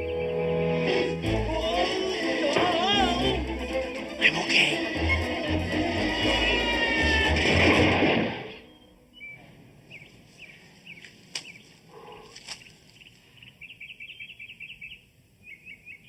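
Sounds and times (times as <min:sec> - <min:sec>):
music cue: 0:00.0 - 0:09.2
small birds chirping: 0:08.5 - 0:16.0.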